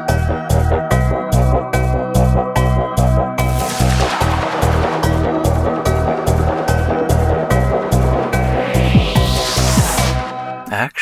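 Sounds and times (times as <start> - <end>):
electronic music with pulsing beat: 2.6 - 10.6.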